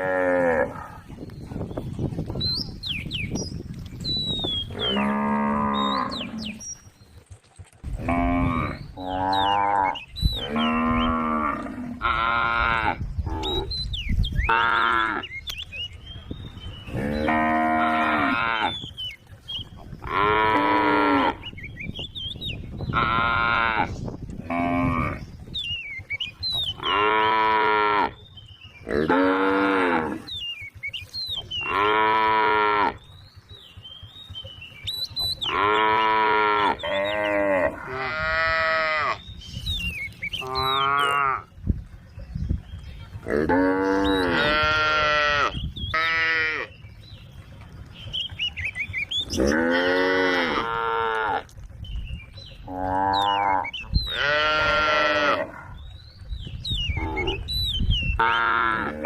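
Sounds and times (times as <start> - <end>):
cows mooing: 0.0 - 1.1, 4.6 - 6.8, 7.8 - 13.8, 14.5 - 15.4, 16.8 - 19.0, 20.0 - 21.6, 22.9 - 25.3, 26.7 - 28.2, 28.8 - 30.4, 31.4 - 33.2, 35.2 - 39.4, 40.3 - 41.6, 43.2 - 46.9, 49.2 - 51.6, 52.6 - 55.8, 56.9 - 59.0.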